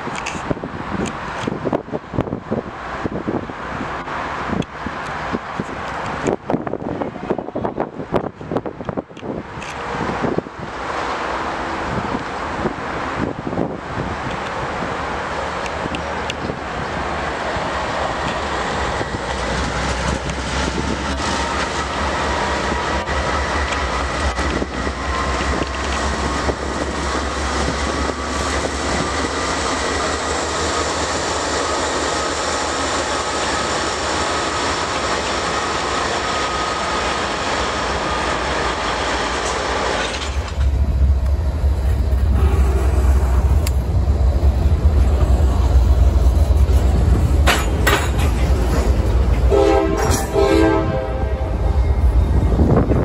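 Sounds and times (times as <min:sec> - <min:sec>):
freight train rolling past: 0:00.0 - 0:53.0
wheels clicking over rail joints: 0:18.0 - 0:31.4, 0:32.0 - 0:50.4
train horn blast: 0:42.3 - 0:43.5, 0:49.5 - 0:51.8.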